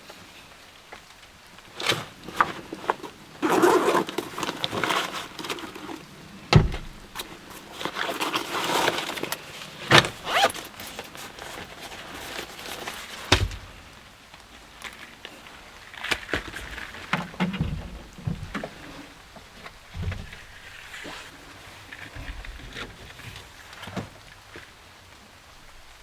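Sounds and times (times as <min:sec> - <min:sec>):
rustling and clattering: 0:00.0 - 0:25.2
heavy thumps: 0:06.5 - 0:07.2, 0:13.3 - 0:13.8, 0:17.3 - 0:18.8, 0:19.9 - 0:20.5.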